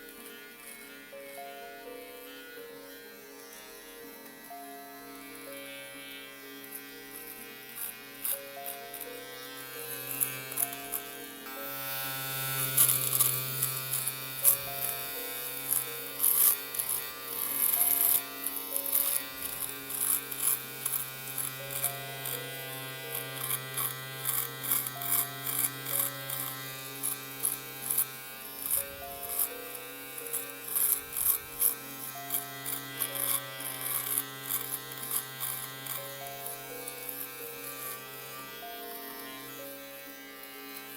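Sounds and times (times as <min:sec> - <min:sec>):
electric shaver buzzing: 0:00.0 - 0:40.9.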